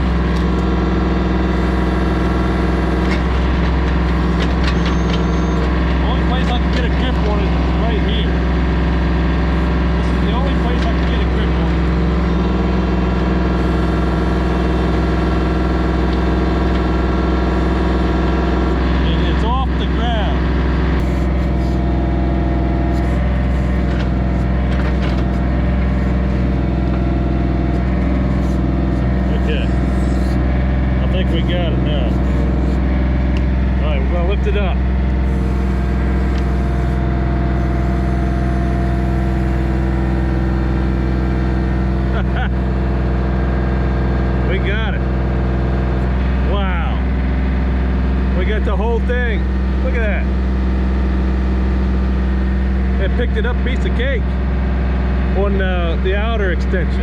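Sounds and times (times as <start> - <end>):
backhoe hydraulics lifting: 0.0 - 44.1
tractor diesel engine running: 0.0 - 57.0.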